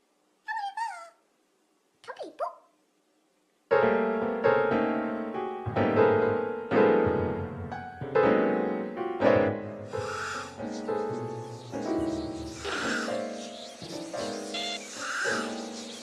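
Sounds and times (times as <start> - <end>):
slow sad piano chords: 3.8 - 16.0.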